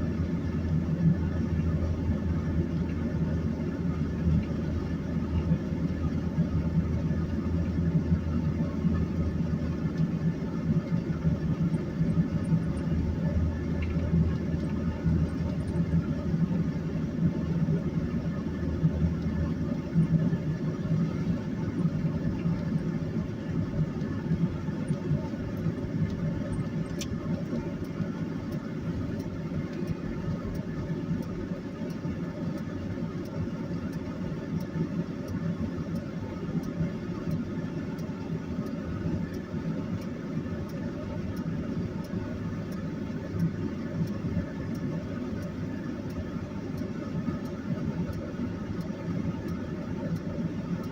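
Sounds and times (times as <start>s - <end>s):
low rumble of engine and tyres: 0.0s - 50.9s
faint repeating tick: 24.0s - 50.9s.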